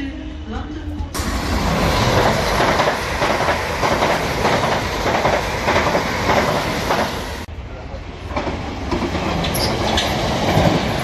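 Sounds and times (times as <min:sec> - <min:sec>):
train wheels clattering: 0:02.0 - 0:07.3, 0:08.3 - 0:11.0.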